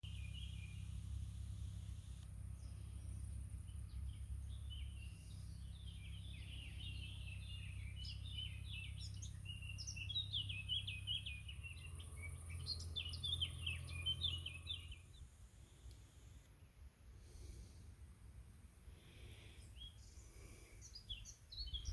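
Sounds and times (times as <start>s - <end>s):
birds chirping and singing: 0.0s - 15.4s, 19.2s - 21.9s
steady low rumble: 0.0s - 15.8s.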